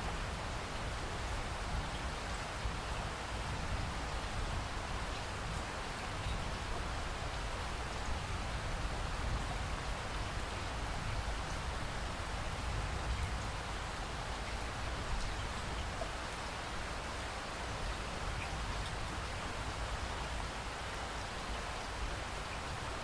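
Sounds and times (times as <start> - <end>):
steady rain hiss: 0.0 - 23.0.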